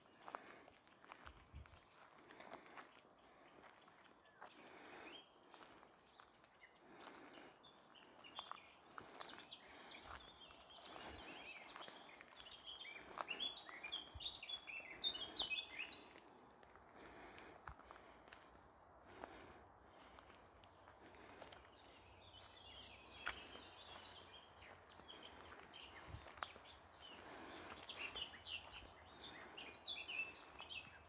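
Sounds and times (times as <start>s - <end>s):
footsteps crunching on gravel: 0.0s - 7.4s, 8.1s - 29.6s
small birds chirping and twittering: 0.0s - 31.0s.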